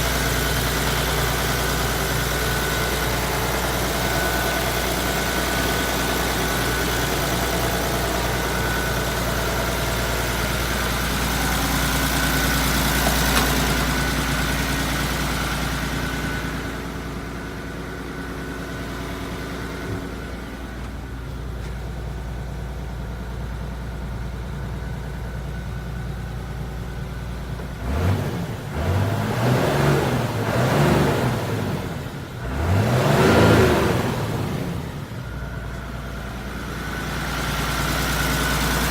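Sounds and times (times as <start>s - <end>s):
diesel truck engine running: 0.0s - 38.9s
engine revving: 27.7s - 35.1s.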